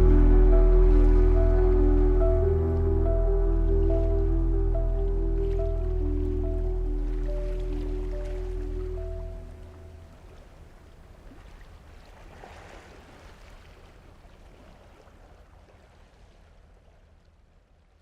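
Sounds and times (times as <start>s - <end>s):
background music: 0.0s - 10.0s
rushing water: 0.0s - 17.9s.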